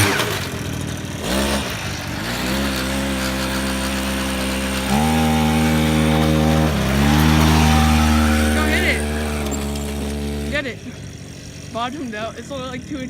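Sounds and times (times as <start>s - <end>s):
small single-cylinder engine revving: 0.0s - 11.7s.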